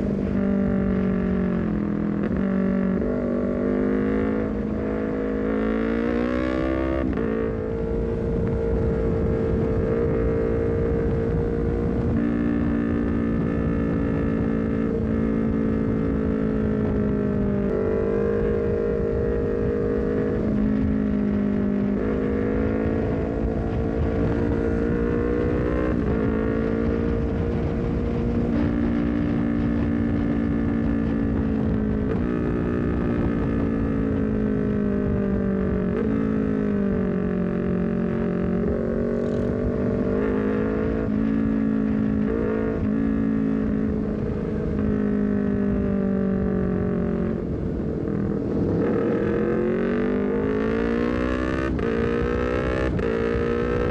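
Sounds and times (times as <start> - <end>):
motorcycle engine shifting gears: 0.0 - 53.9
wind and road noise: 0.0 - 53.9.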